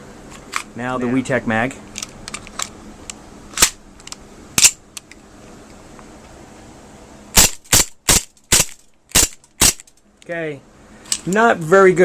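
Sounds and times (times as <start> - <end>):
pistol slide cycling: 3.5 - 5.2, 7.4 - 10.0
airsoft pistol shots: 7.4 - 9.8.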